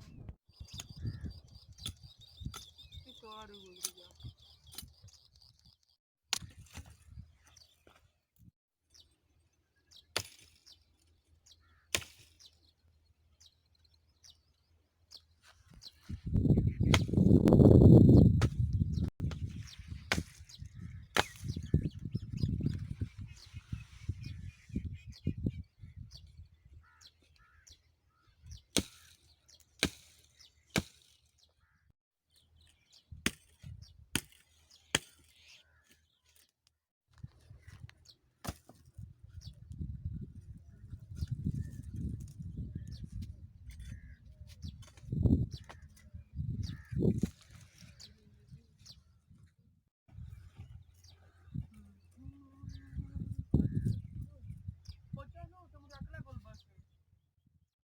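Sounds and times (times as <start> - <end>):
faint bird chirps: 0.1 - 6.0
axe chopping into tree: 11.9 - 12.3, 16.9 - 17.3, 20.1 - 21.6, 28.7 - 29.2, 29.8 - 30.2, 30.8 - 31.2, 33.3 - 34.4, 35.0 - 35.3, 38.4 - 38.8
axe chopping wood: 21.2 - 21.6, 29.8 - 30.2, 30.8 - 31.1, 38.4 - 38.8.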